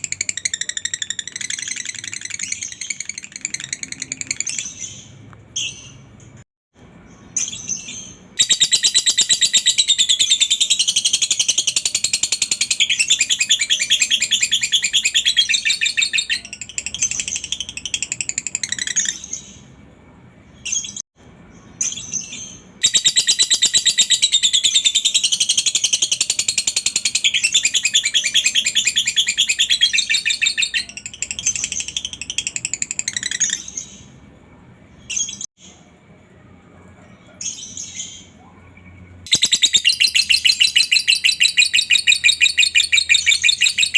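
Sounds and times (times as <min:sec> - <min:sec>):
bird chattering trill: 0:00.0 - 0:04.7, 0:22.8 - 0:33.8, 0:38.8 - 0:43.9.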